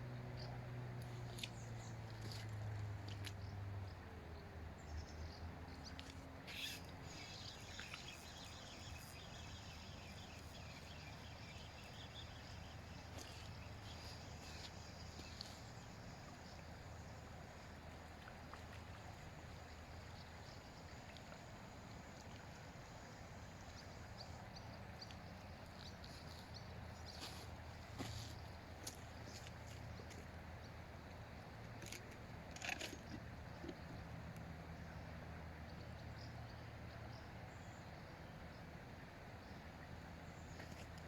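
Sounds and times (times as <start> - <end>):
steady low hum: 0.0 - 31.6.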